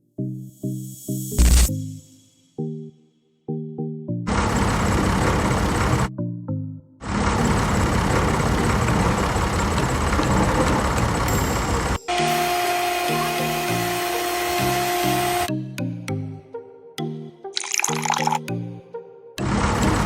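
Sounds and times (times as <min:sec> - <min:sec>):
background music: 0:00.0 - 0:04.4, 0:06.0 - 0:07.0, 0:11.3 - 0:20.0.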